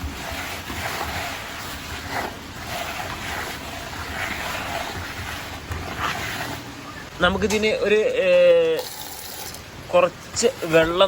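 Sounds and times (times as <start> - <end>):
hands stirring dry pellets: 0.0 - 6.7.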